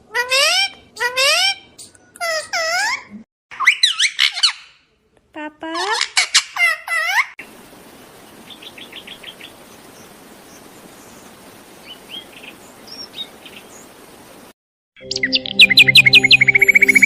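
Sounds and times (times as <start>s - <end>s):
background hiss: 7.4s - 14.6s.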